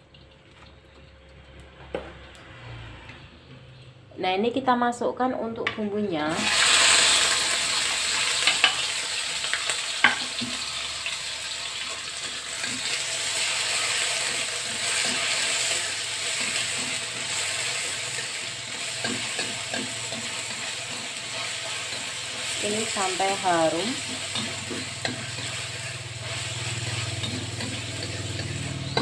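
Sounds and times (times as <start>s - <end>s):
food sizzling in a wok: 6.2s - 29.0s
spatula scraping a wok: 11.7s - 29.0s.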